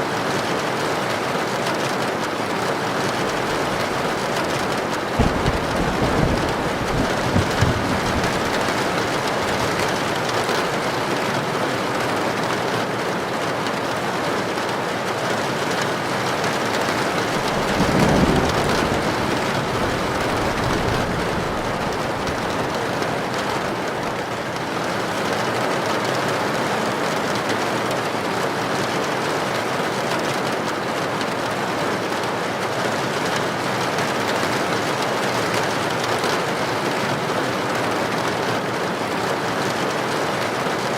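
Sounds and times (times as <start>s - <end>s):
heavy rain on a tin roof: 0.0s - 40.9s
low thunder rumble: 3.0s - 10.6s, 17.0s - 24.4s.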